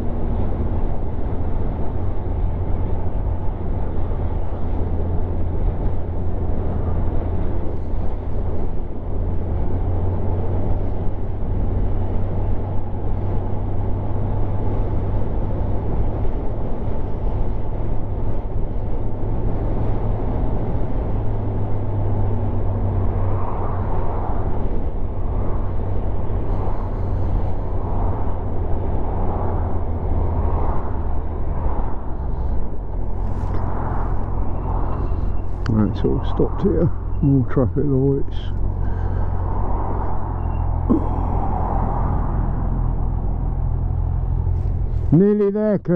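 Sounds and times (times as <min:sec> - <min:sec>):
wind buffeting microphone: 0:14.9 - 0:45.2
motorcycle engine rumbling: 0:32.2 - 0:45.3.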